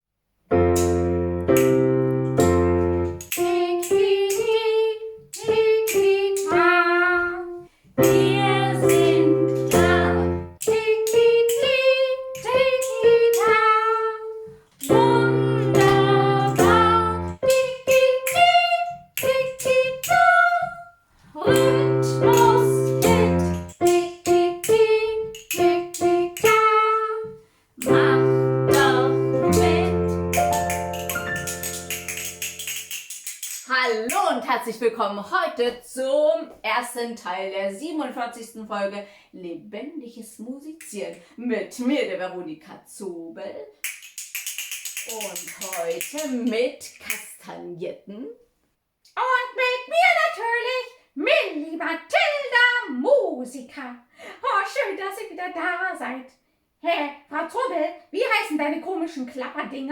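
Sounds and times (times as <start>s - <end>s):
keyboard chords: 0.5s - 4.4s, 5.9s - 14.0s, 14.8s - 18.9s, 21.5s - 26.8s, 27.8s - 32.9s
woman singing: 3.4s - 20.8s, 21.4s - 25.3s, 26.0s - 30.1s.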